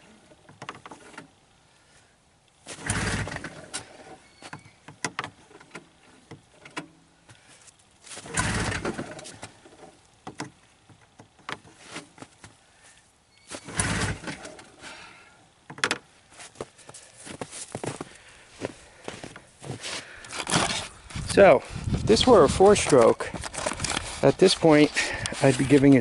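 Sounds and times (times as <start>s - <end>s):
engine turning over on recoil starter: 2.7s - 4.2s, 8.2s - 10.0s, 13.5s - 15.2s.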